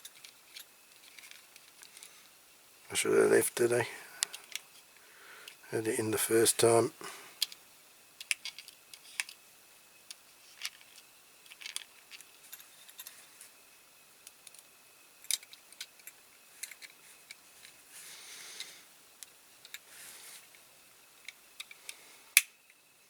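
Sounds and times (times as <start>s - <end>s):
toy car parts clicking: 8.2s - 9.4s, 10.1s - 13.1s, 15.3s - 17.4s.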